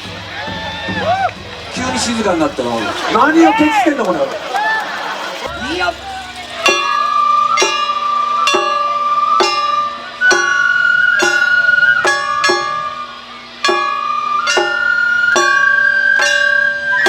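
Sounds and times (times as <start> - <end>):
shamisen plucked notes: 5.5 - 17.0
held high tone: 6.6 - 17.0.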